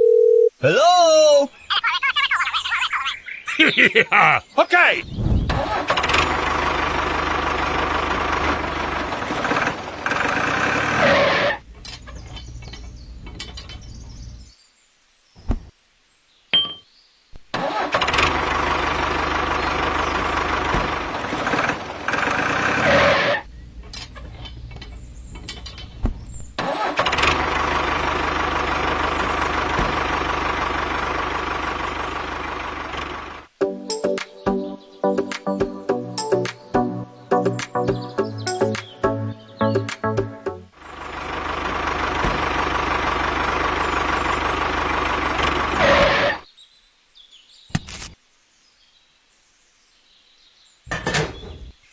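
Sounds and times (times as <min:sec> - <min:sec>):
engine running loudly: 0:18.2 - 0:23.4, 0:40.8 - 0:46.4.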